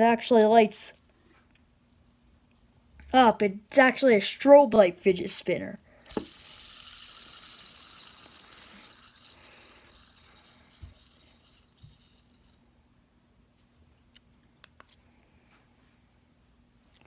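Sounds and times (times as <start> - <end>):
fidget spinner whirring: 6.0 - 12.9.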